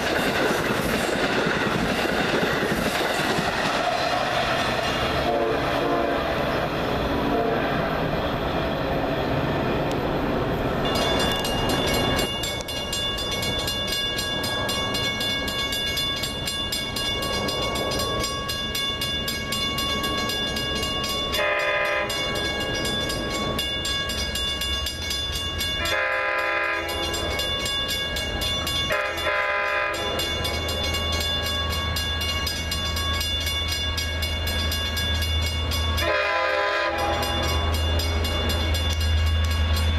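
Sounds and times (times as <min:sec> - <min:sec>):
diesel train passing on rails: 0:00.0 - 0:39.9
locomotive horn blasts: 0:05.2 - 0:06.5, 0:07.2 - 0:07.8, 0:21.3 - 0:22.2, 0:25.8 - 0:27.4, 0:28.9 - 0:30.4, 0:36.0 - 0:37.8.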